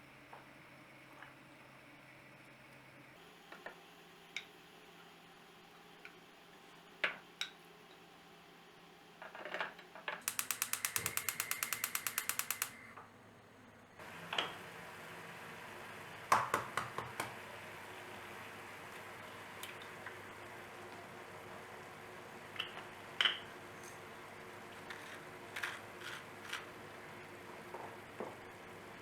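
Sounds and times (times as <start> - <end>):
single clicks and knocks: 10.2 - 12.8
small mechanism ratcheting: 10.2 - 12.8.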